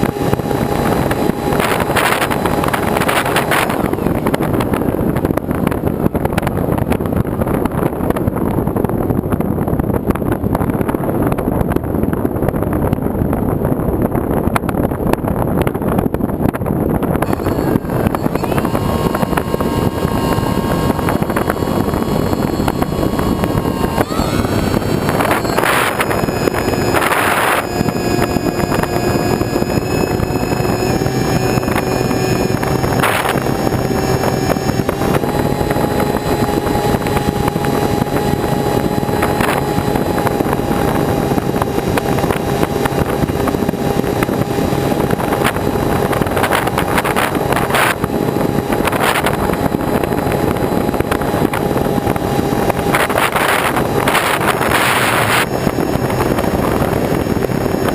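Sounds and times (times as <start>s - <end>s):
motor running: 0.0s - 8.9s, 17.2s - 57.9s
wind noise on microphone: 0.0s - 57.9s.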